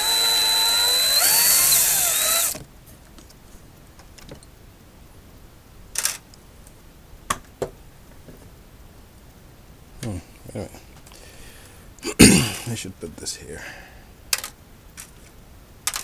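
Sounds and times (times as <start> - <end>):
power screwdriver motor whining: 0.0 - 2.6
sharp small clicks: 6.0 - 6.4, 14.3 - 16.0.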